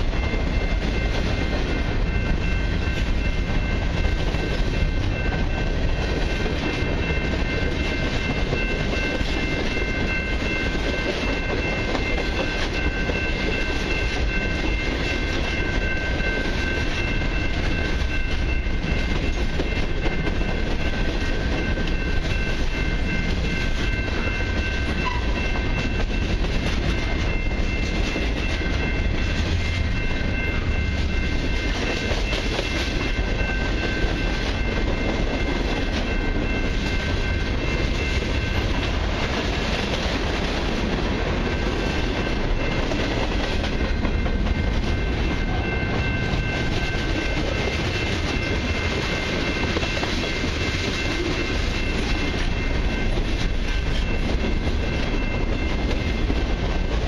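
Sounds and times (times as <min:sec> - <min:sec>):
freight train wheels rumbling: 0:00.0 - 0:57.0.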